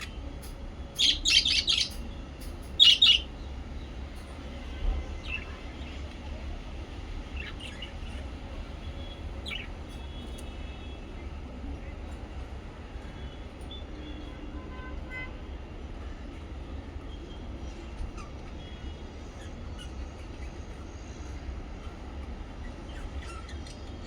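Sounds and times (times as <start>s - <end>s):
parrots chirping: 0.9s - 2.0s, 2.6s - 3.4s, 5.2s - 5.9s, 7.4s - 8.3s, 9.0s - 10.4s, 17.8s - 20.8s, 21.8s - 24.0s.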